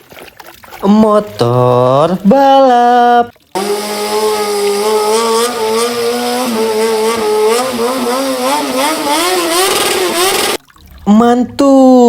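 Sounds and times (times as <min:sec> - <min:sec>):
motorcycle engine revving: 0:03.6 - 0:10.6.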